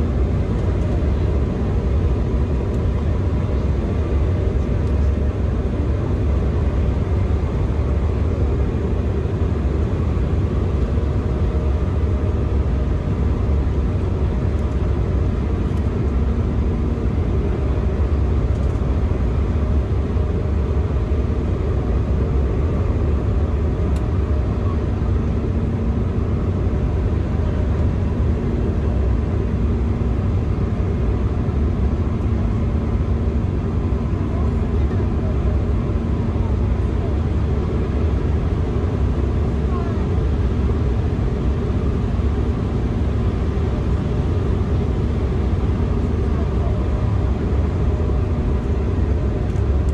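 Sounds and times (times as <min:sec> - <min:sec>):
airliner cabin rumble: 0:00.0 - 0:49.9
faint hum: 0:31.3 - 0:49.9.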